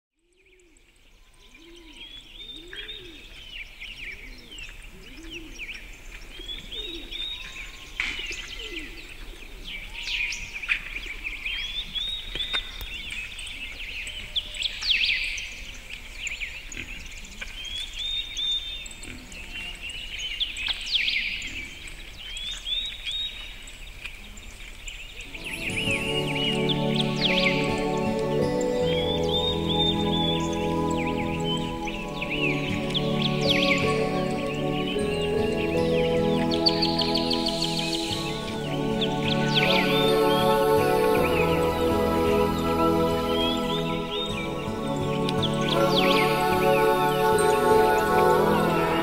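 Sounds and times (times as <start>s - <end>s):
birds chirping and whistling: 25.3s - 49.0s.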